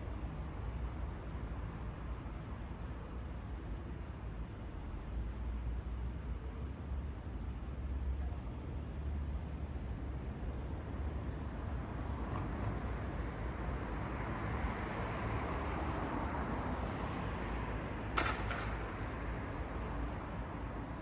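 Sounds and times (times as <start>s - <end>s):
traffic rumble: 10.8s - 21.0s
sharp knocks: 18.2s - 19.4s.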